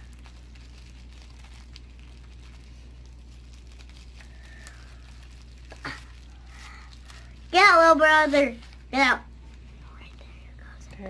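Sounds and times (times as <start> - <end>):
plastic bag crinkling: 0.0 - 11.0
steady low hum: 0.0 - 11.0.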